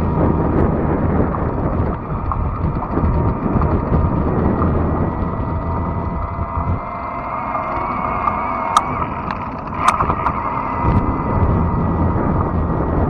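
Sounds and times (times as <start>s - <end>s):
faint steady whine: 0.0s - 13.0s
rolling tyre noise: 0.0s - 13.0s
wind rumble on microphone: 0.0s - 13.0s
sharp clicks or rattles: 8.2s - 10.4s.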